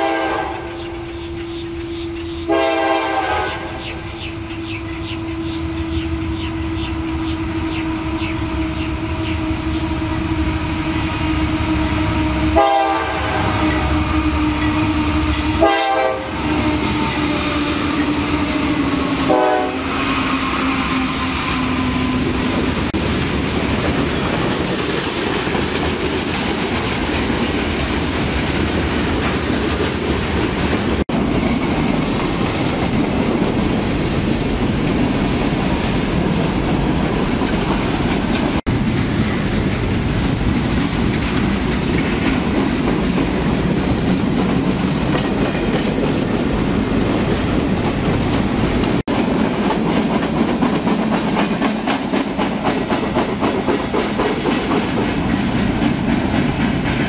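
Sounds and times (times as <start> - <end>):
train horn chord: 0.0 - 0.9, 1.5 - 3.9, 7.7 - 18.6, 19.2 - 22.2
freight car wheels clickety-clack: 47.2 - 57.0.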